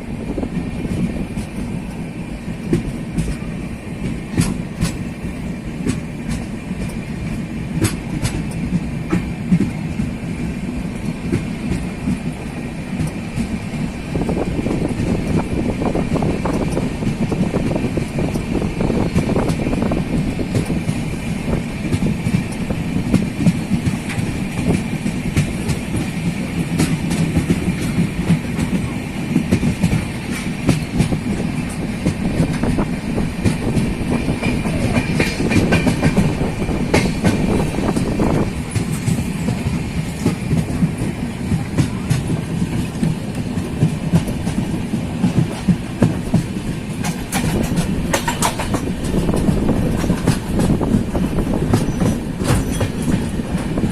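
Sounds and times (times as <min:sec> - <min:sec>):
train rumble: 0:00.0 - 0:53.9
wheels clattering over rail joints: 0:18.3 - 0:53.9.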